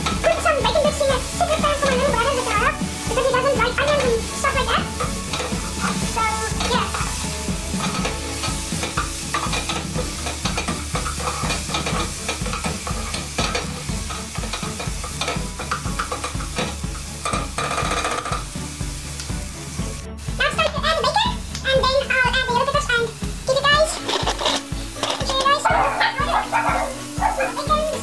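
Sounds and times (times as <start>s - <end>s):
vegetables and bacon sizzling: 0.0s - 28.0s
spoon scraping and knocking pot: 5.0s - 6.0s, 6.6s - 18.5s, 24.0s - 25.9s.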